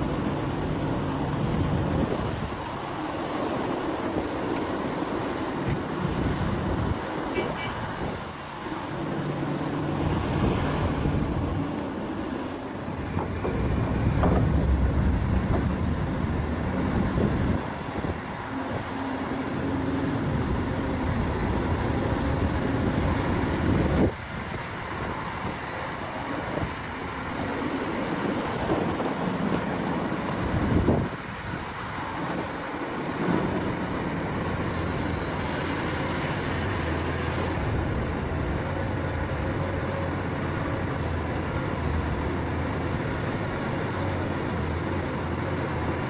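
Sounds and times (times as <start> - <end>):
excavator diesel engine droning: 0.0 - 28.9.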